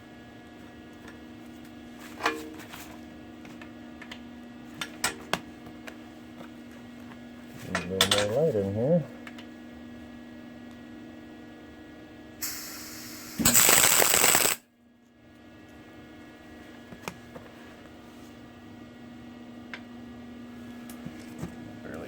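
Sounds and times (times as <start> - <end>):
steady electrical hum: 0.0 - 22.0
arc welding crackling: 12.4 - 14.6
short high hiss: 12.4 - 14.6.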